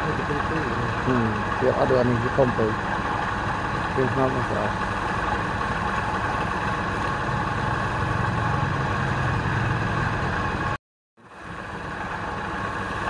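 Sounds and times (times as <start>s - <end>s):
machine motor humming: 0.0s - 10.4s.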